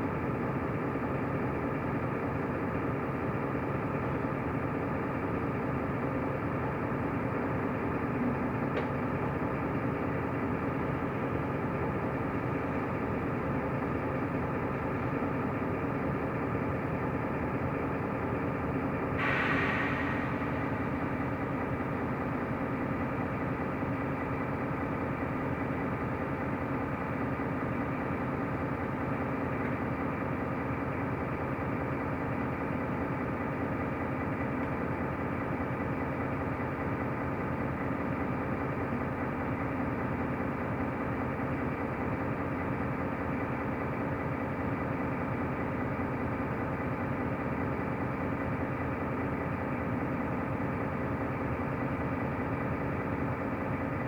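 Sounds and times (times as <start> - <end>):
bus diesel engine humming: 0.0 - 54.0.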